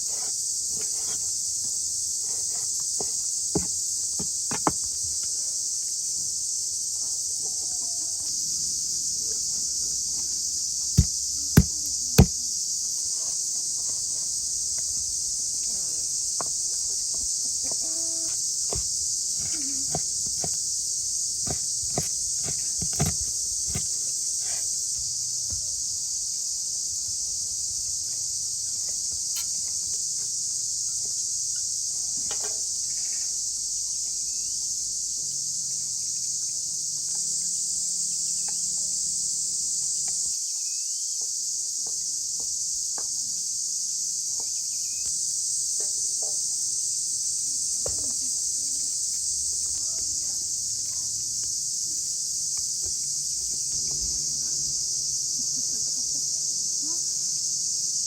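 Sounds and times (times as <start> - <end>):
high-pitched insect chorus: 0.0 - 58.0
sharp knocks: 11.0 - 12.4, 21.5 - 23.9.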